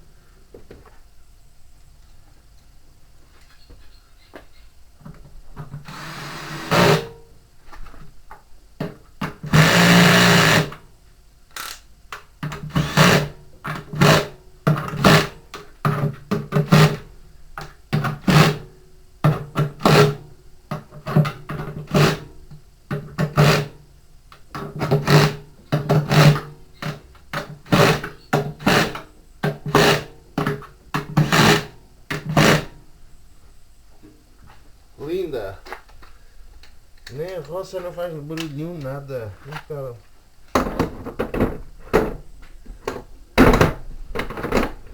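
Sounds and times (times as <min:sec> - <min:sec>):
cordless drill driving screws: 0:09.6 - 0:10.8, 0:12.7 - 0:13.3.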